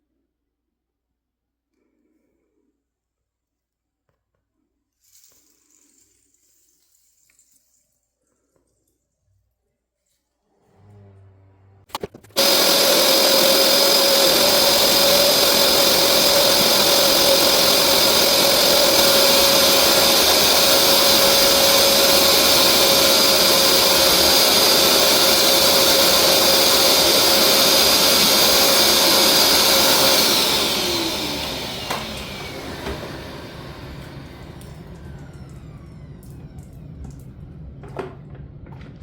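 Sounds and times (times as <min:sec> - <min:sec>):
carpet cleaner motor whining: 0:10.7 - 0:39.0.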